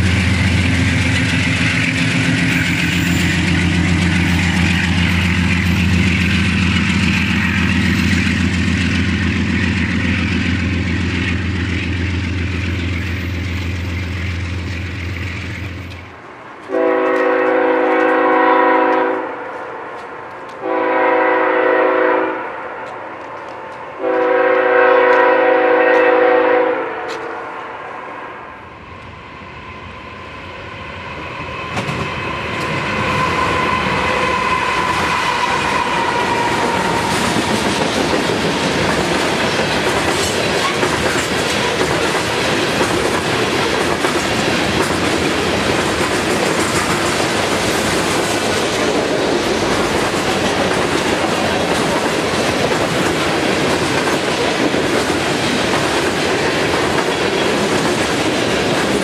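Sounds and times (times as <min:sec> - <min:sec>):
freight cars rumbling past: 0:00.0 - 0:16.6, 0:27.2 - 0:59.0
wheels clacking over rail joints: 0:00.0 - 0:20.6, 0:31.6 - 0:59.0
train horn held tone: 0:16.7 - 0:19.9, 0:20.6 - 0:23.0, 0:24.0 - 0:28.5.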